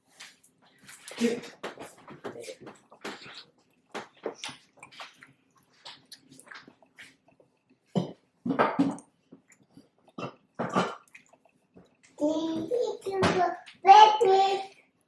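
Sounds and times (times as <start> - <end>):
crisp chewing crackles: 0.1 - 8.0, 9.0 - 12.2.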